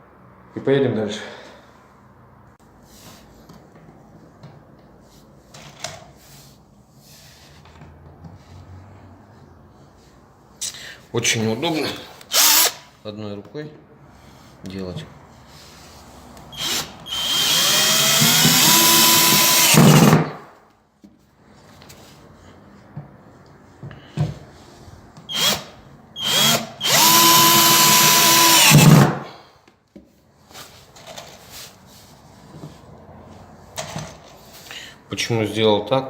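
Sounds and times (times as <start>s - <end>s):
power drill driving screws: 12.3s - 12.9s, 16.5s - 20.4s, 25.3s - 29.2s.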